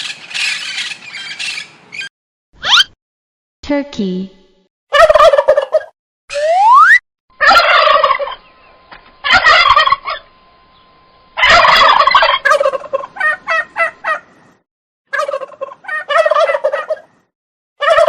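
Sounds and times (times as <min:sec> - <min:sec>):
turkey gobbling: 0:00.0 - 0:02.1, 0:04.9 - 0:10.3, 0:11.4 - 0:14.4, 0:15.1 - 0:17.2, 0:17.8 - 0:18.0.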